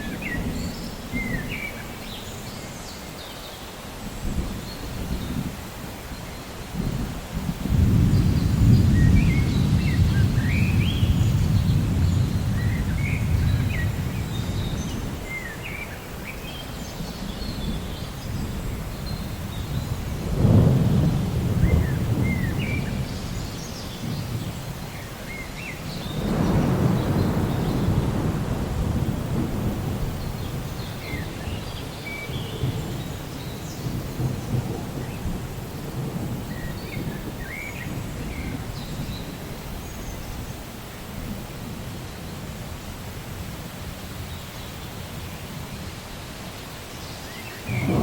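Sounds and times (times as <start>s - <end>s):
rain hissing: 0.0s - 48.0s
thunder rumbling: 6.7s - 15.4s, 17.0s - 40.5s, 47.6s - 48.0s.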